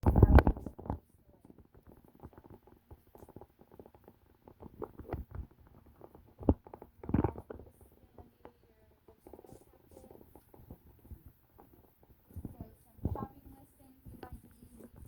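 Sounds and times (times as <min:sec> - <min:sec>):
scratching and rustling: 0:00.0 - 0:15.0.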